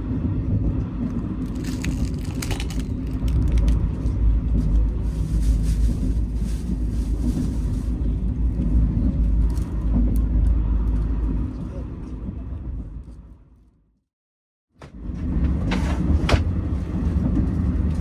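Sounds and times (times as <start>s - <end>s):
train rumble inside carriage: 0.0s - 13.8s, 14.8s - 18.0s.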